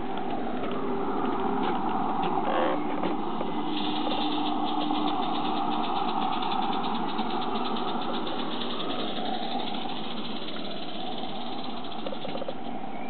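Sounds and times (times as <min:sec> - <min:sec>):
model steam locomotive exhaust beats: 0:03.1 - 0:13.0
steam hiss: 0:03.5 - 0:12.7.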